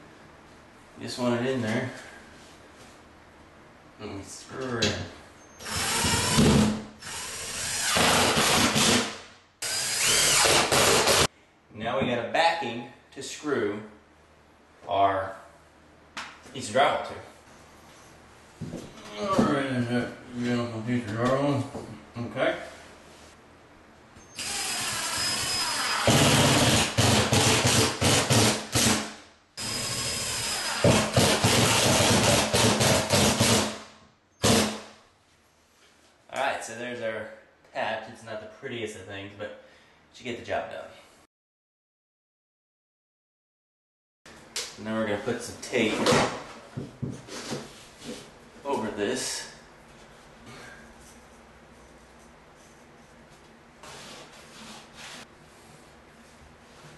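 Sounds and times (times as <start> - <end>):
power drill driving screws: 5.6 - 11.3, 24.4 - 29.0, 29.6 - 33.7.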